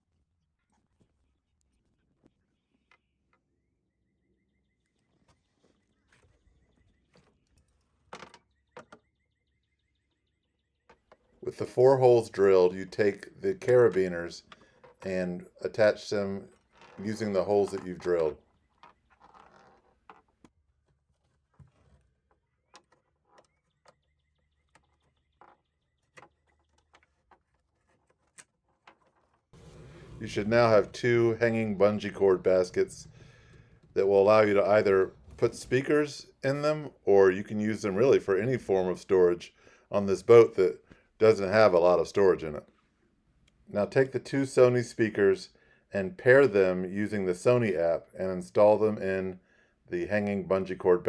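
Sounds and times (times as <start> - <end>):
low steady hum: 29.6 - 38.7.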